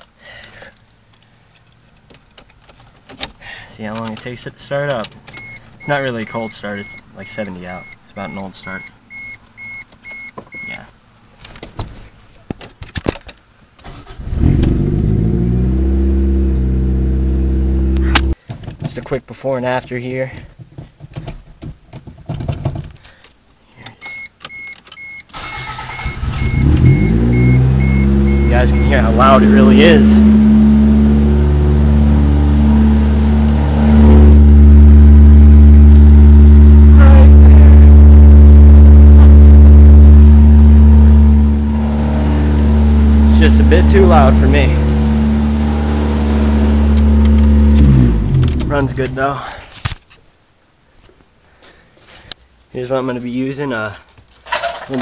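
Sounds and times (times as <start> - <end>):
car engine starting and idling: 13.8 - 18.4, 25.3 - 49.2.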